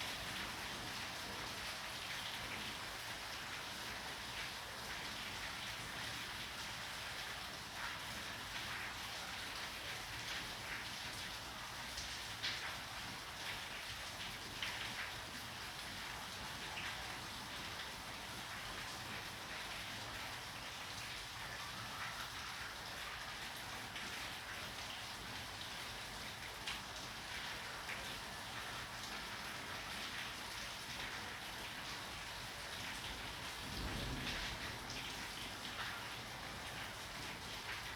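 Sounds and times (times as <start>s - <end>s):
steady rain falling: 0.0s - 37.9s.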